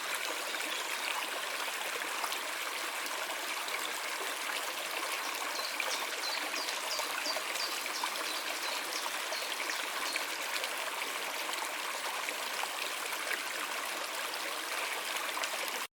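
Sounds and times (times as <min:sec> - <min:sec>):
stream flowing: 0:00.0 - 0:15.9.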